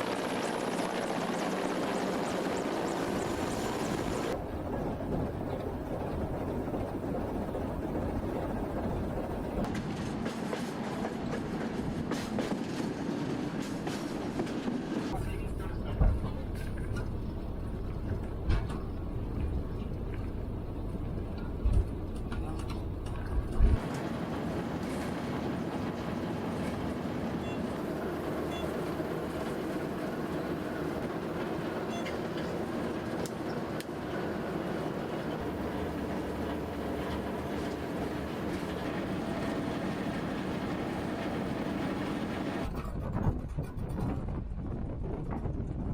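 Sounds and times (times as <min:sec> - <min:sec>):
train rumbling on rails: 0:00.0 - 0:45.9.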